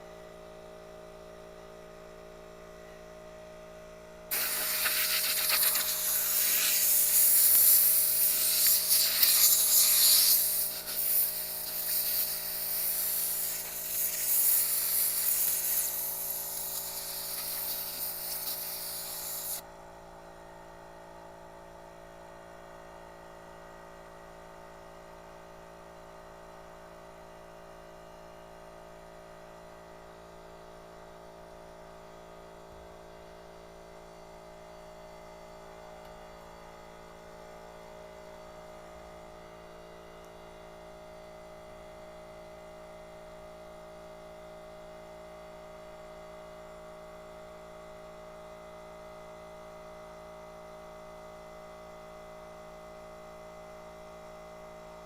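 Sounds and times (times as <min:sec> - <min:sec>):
compressed air blowgun hissing: 0:04.3 - 0:19.6
steady hum: 0:04.3 - 0:19.6.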